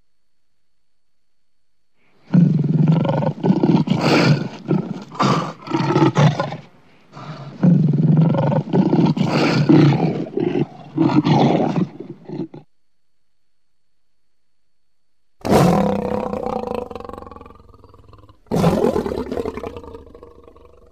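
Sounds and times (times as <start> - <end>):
lion roaring: 2.3 - 12.7, 15.4 - 20.9.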